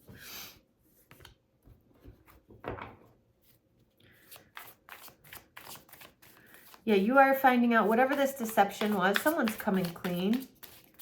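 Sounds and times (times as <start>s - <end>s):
cards rustling: 4.2s - 11.0s.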